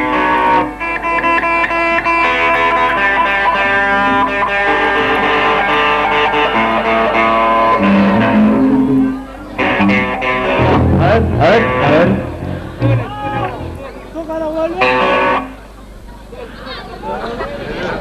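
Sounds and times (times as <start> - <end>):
guitar playing ringing notes: 1.7 - 14.2, 14.8 - 15.6.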